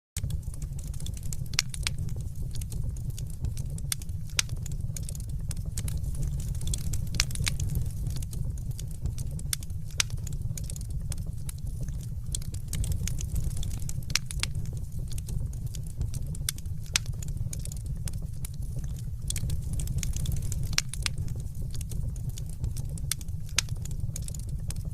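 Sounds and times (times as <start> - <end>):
fire rumbling: 0.2 - 24.9
wood pops and snaps: 20.1 - 21.8.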